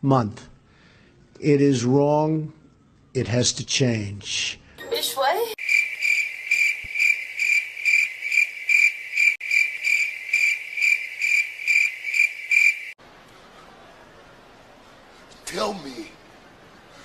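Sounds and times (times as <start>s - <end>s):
crickets chirping: 5.6s - 13.0s.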